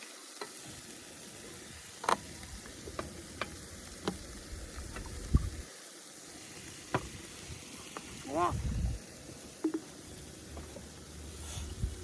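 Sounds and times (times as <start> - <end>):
meat sizzling: 0.0 - 12.0.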